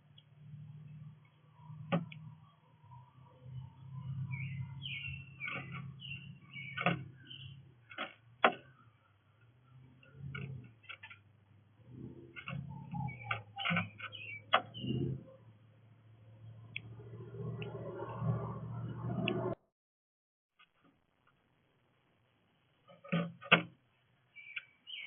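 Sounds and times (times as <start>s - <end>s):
small birds chirping: 0.0s - 11.3s, 11.9s - 15.6s, 24.2s - 25.0s.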